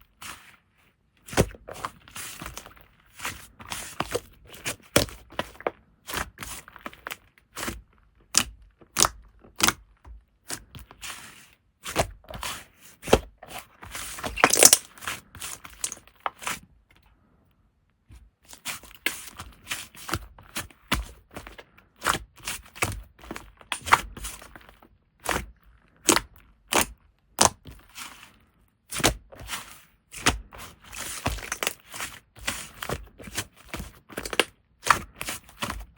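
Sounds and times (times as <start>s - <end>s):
slime popping and crackling: 14.2s - 14.9s.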